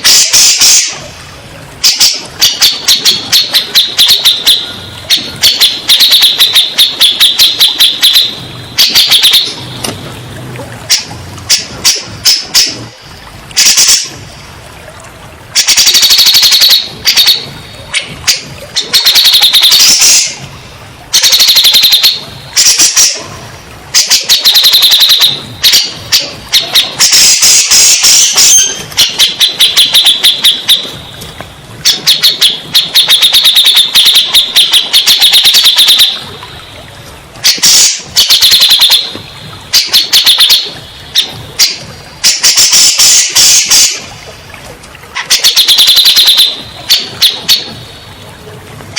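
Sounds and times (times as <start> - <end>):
bulbul singing chattering notes: 1.8 - 9.9, 15.6 - 20.4, 21.1 - 23.2, 24.0 - 31.2, 31.8 - 36.3, 45.2 - 47.8.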